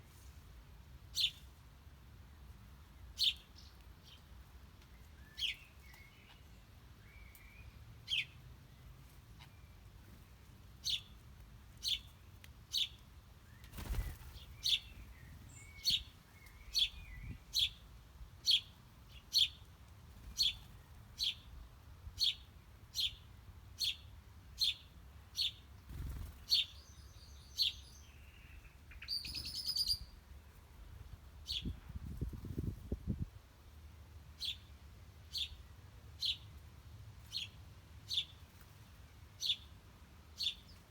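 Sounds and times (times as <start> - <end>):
sharp down-slurred bird chirps: 26.6 - 30.2.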